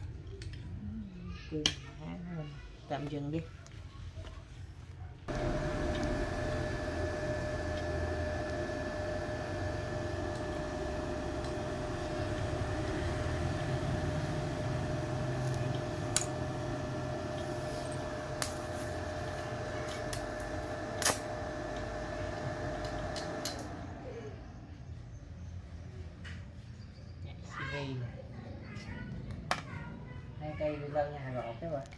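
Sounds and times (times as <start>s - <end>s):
welding machine hum and whine: 5.3s - 25.2s.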